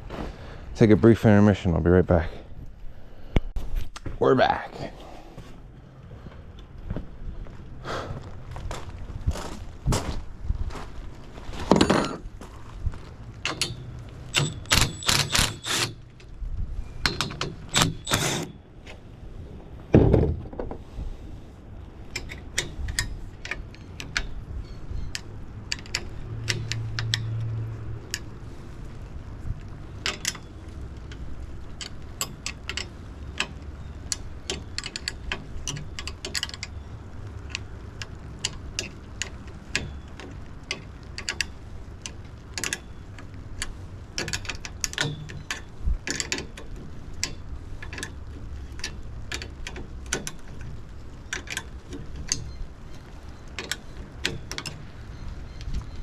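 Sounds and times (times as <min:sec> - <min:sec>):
metal hardware clinking and knocking: 0:13.4 - 0:16.0.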